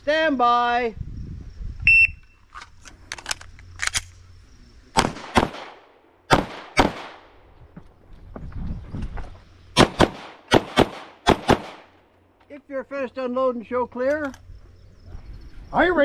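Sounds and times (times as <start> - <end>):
handgun shots: 5.0 - 7.2, 9.8 - 11.9.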